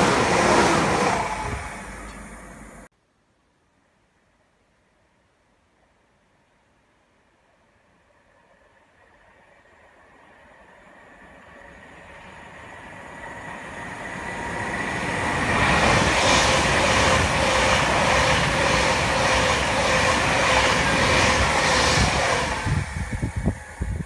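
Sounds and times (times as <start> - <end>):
passenger train passing: 0.0 - 2.9, 7.9 - 24.0
train wheels beating over rails: 12.7 - 24.0.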